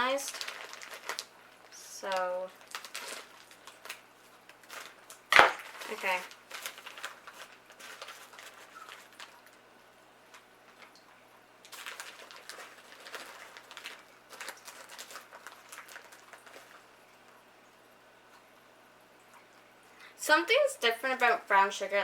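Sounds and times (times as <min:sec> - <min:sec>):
sugar bag rustling: 0:00.0 - 0:09.6, 0:11.6 - 0:16.9.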